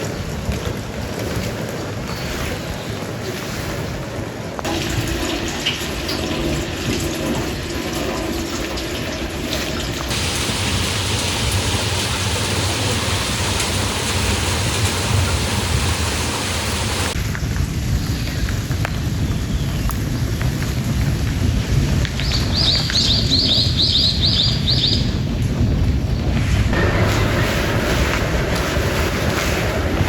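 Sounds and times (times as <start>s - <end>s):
steady rain falling: 0.0s - 3.2s, 4.4s - 30.0s
water drips: 4.6s - 17.2s
low rumble: 25.2s - 30.0s.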